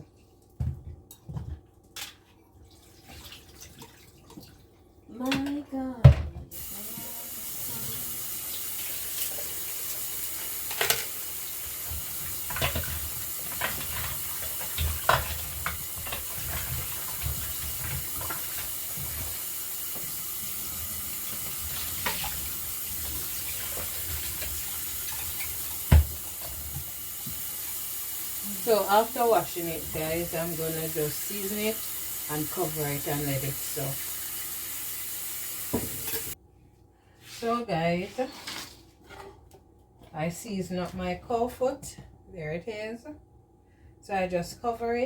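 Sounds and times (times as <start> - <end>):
tap running into sink: 10.6 - 27.9, 35.6 - 36.4.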